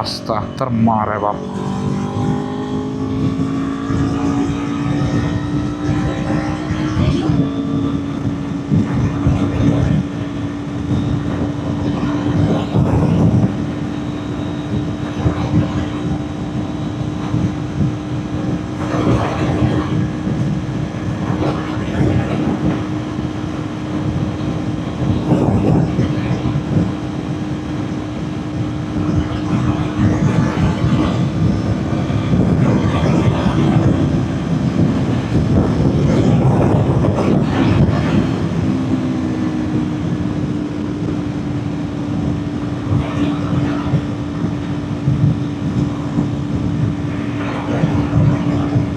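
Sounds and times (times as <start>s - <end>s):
wind buffeting on microphone: 0.0s - 48.9s
motorcycle engine at high revs: 1.4s - 9.3s.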